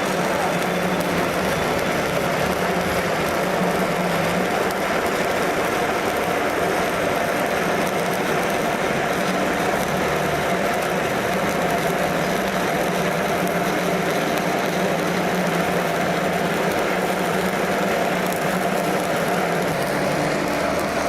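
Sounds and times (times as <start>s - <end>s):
welding arc crackling hiss: 0.0s - 21.0s.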